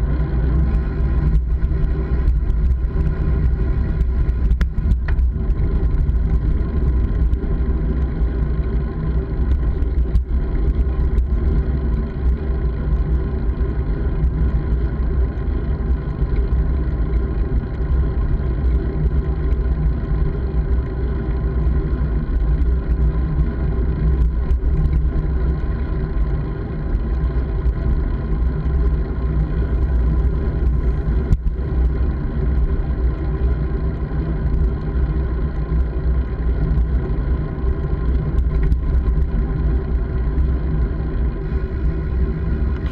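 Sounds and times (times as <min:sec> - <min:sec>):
road noise: 0:00.0 - 0:12.8, 0:22.0 - 0:42.9.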